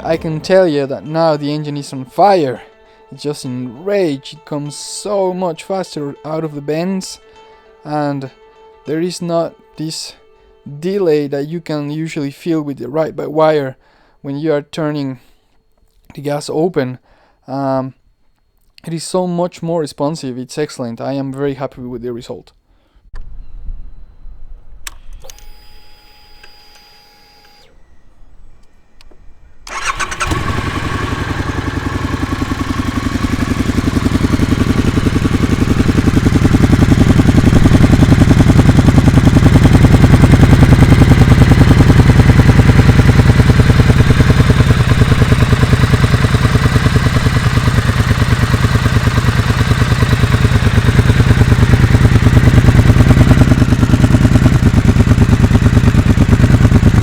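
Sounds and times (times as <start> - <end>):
motorcycle engine starting: 0.0 - 13.2, 27.5 - 57.0
motorcycle engine idling: 29.7 - 57.0.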